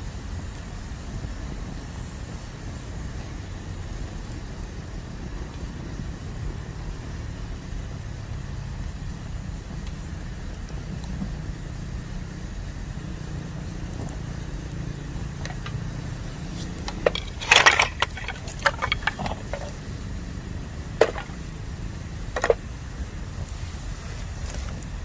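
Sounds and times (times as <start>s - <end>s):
bamboo crackling and popping in fire: 0.0s - 25.0s.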